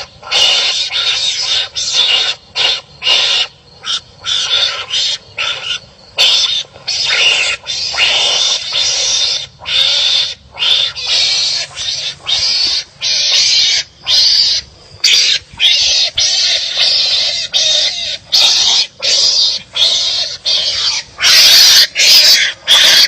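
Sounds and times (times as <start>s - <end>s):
harsh raspy animal calls: 0.0s - 23.0s.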